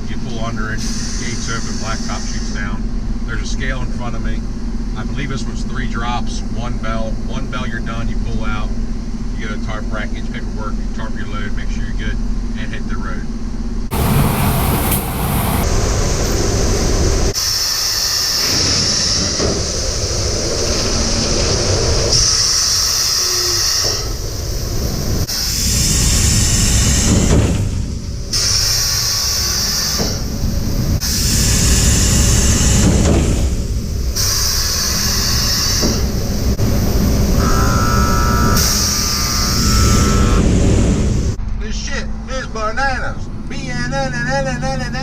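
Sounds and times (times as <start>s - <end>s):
loud hissing: 0.6s - 2.8s, 13.9s - 41.4s
buzzing bell tone: 37.3s - 40.4s.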